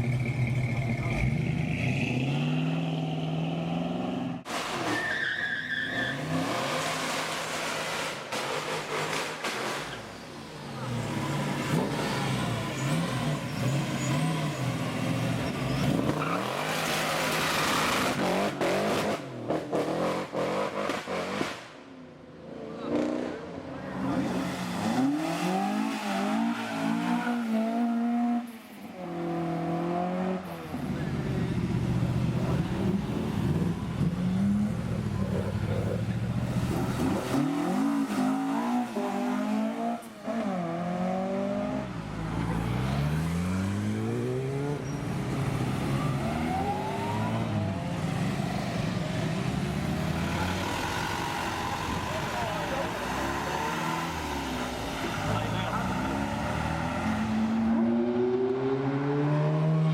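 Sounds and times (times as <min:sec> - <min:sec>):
car engine revving: 0:22.8 - 0:59.9.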